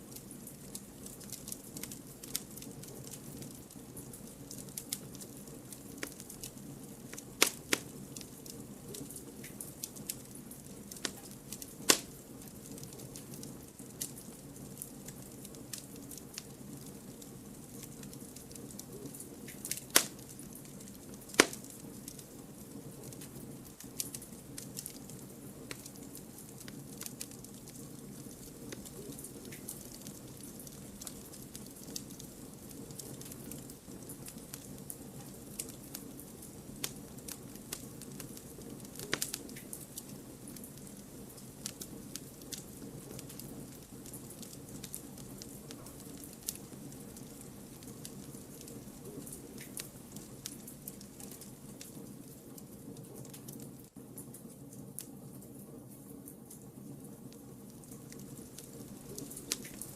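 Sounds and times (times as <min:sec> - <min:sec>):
campfire flames rushing: 0:00.0 - 0:55.4, 0:56.2 - 0:59.9
fire crackling: 0:00.0 - 0:59.9
sharp loud pops of firewood: 0:11.9 - 0:12.1, 0:21.4 - 0:21.6.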